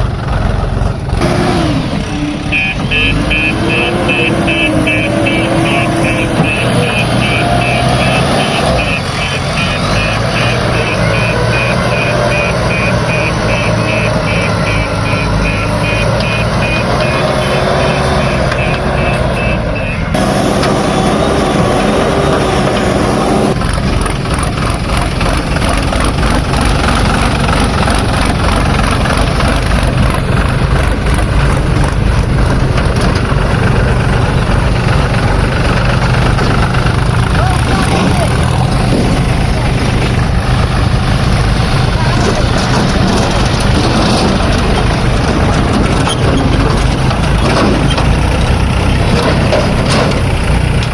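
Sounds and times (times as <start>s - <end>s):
diesel engines running: 0.0s - 50.9s
high beeping: 2.1s - 22.3s.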